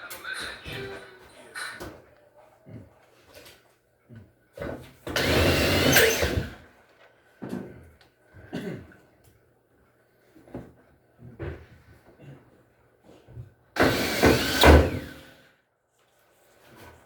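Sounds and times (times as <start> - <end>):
power tool whine: 5.2 - 6.6, 13.8 - 15.3.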